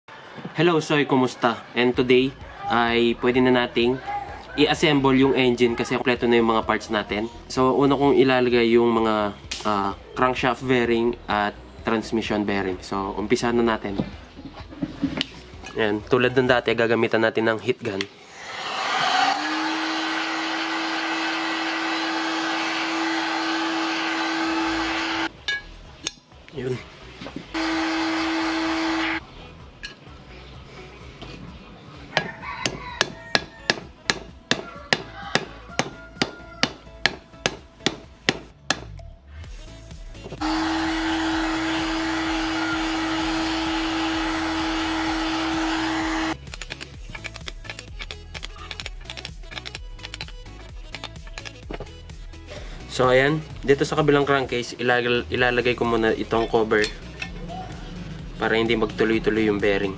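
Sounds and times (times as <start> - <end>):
heat gun fan whine: 18.3 - 25.3, 27.6 - 29.2, 40.4 - 50.2.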